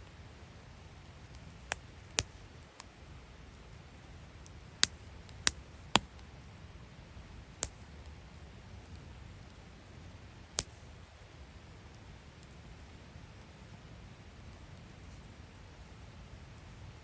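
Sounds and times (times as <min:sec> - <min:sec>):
wood fire crackling: 0:00.0 - 0:17.0
sharp pops of fire: 0:01.3 - 0:02.9, 0:04.4 - 0:06.3, 0:07.5 - 0:08.2, 0:10.4 - 0:11.0.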